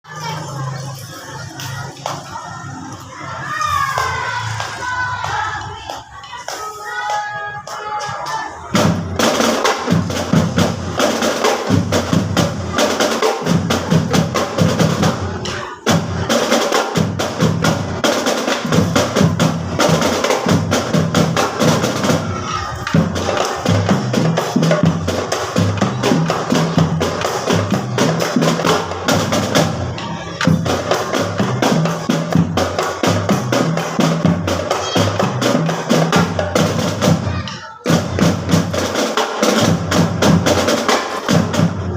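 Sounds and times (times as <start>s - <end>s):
marching drum band playing: 8.6s - 41.9s.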